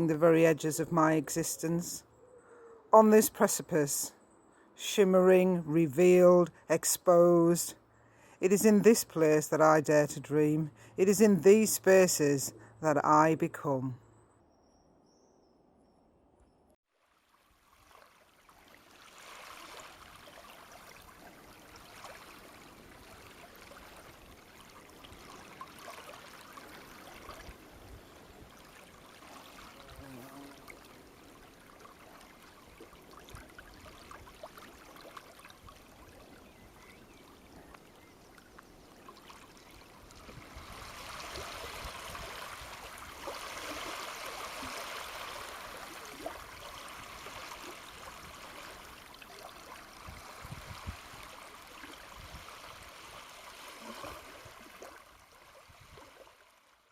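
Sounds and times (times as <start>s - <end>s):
stream babbling over stones: 39.0s - 56.4s.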